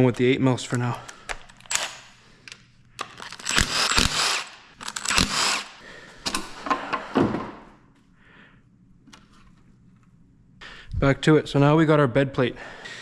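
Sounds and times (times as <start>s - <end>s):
sharp metallic clicks: 1.2s - 5.7s
cordless power tool spinning: 3.2s - 5.8s.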